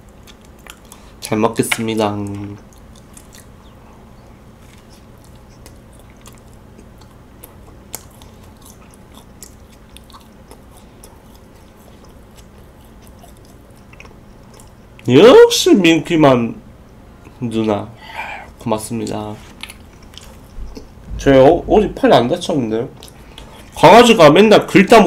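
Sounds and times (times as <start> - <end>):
person chewing crunchy toast: 0.0 - 1.3, 2.4 - 3.8, 4.5 - 15.1, 19.5 - 21.0.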